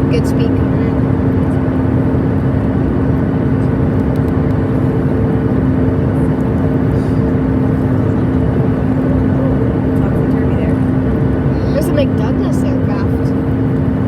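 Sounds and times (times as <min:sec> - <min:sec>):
airplane cabin noise: 0:00.0 - 0:14.0.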